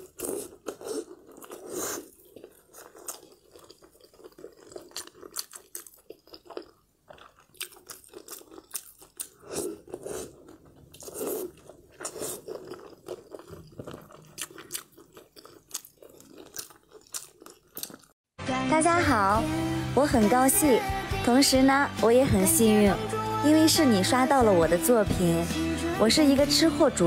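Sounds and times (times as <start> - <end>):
person chewing: 0.0 - 18.2.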